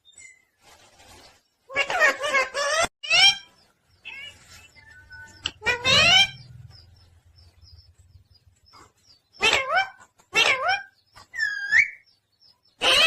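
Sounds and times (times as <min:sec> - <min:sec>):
parrot calling: 0:01.7 - 0:06.6, 0:09.4 - 0:12.0, 0:12.8 - 0:13.0.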